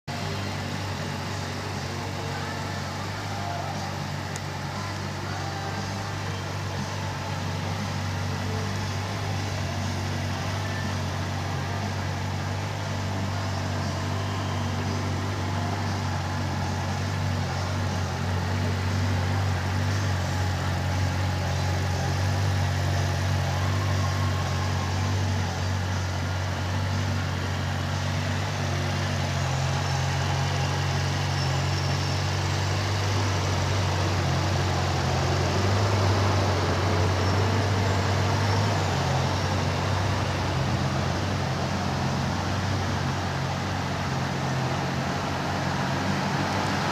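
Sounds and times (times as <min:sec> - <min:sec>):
motorcycle engine idling: 0:00.1 - 0:46.9.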